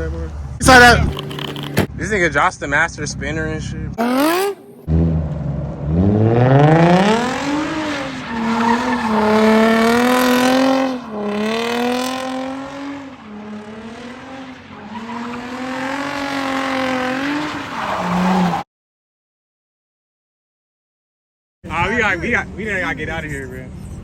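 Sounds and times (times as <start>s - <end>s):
car engine revving hard: 4.0s - 18.5s.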